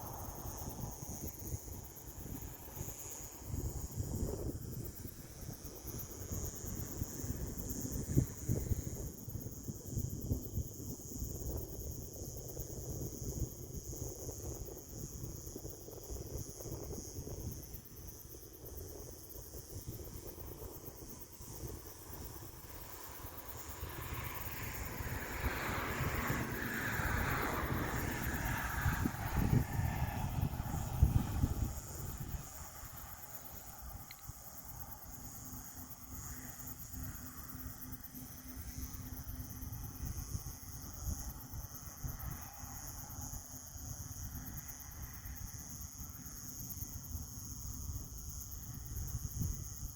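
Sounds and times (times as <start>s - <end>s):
crickets chirping: 0.0s - 49.9s
wind rumbling on microphone: 0.0s - 49.9s
vehicle passing by: 22.8s - 33.3s.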